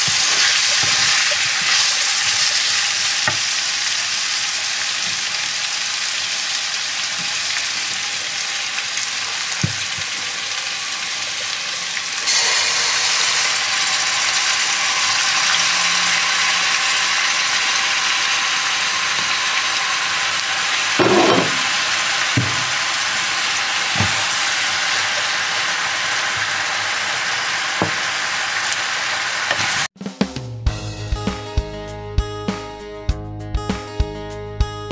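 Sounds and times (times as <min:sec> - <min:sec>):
food sizzling in a wok: 0:00.0 - 0:29.9
background music: 0:30.0 - 0:34.9.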